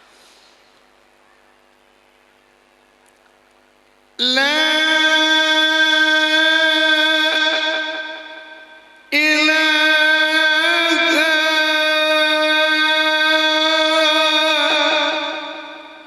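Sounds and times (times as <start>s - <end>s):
man reciting a long melodic note: 4.2s - 16.0s.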